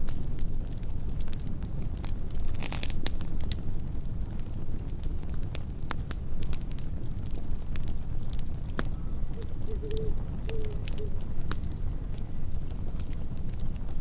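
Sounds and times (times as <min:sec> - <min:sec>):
campfire crackling: 0:00.0 - 0:14.0
cricket chirping: 0:08.5 - 0:13.2.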